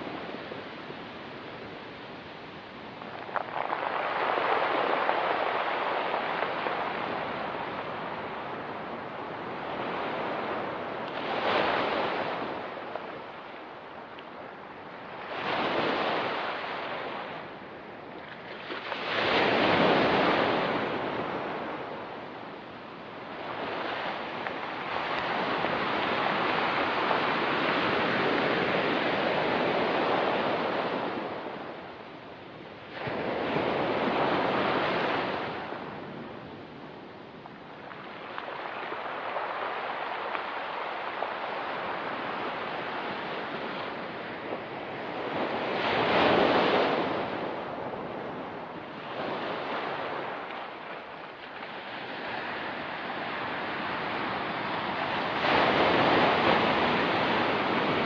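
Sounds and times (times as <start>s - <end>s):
waves breaking on pebbly shore: 2.6s - 13.8s, 18.4s - 22.1s, 37.4s - 58.0s.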